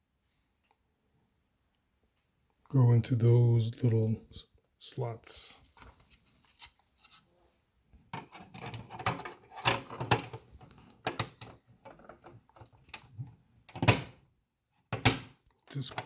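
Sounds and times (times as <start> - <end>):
plastic clicks and knocks: 8.1 - 14.2, 14.9 - 16.0.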